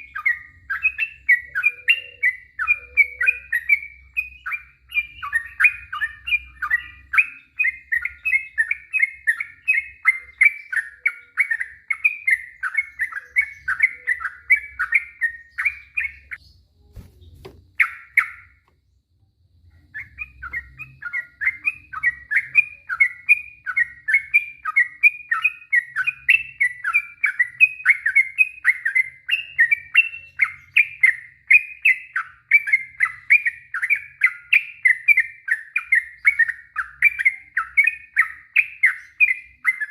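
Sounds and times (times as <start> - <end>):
bulbul chirping song: 0.0 - 39.9.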